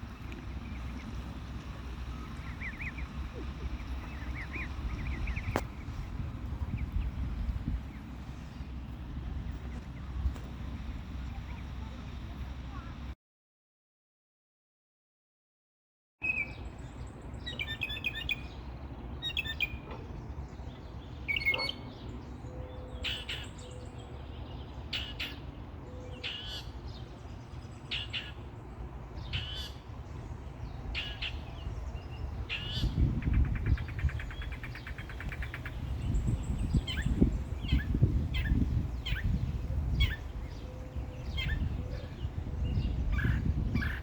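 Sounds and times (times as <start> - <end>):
birds chirping: 0.0 - 13.2, 16.2 - 44.0
low rumble: 0.0 - 13.2.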